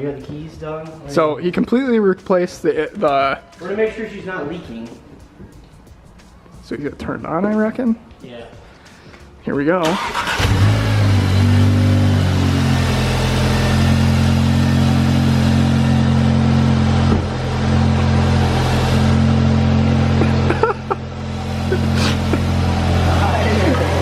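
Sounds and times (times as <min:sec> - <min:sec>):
car engine idling: 0:10.0 - 0:24.0.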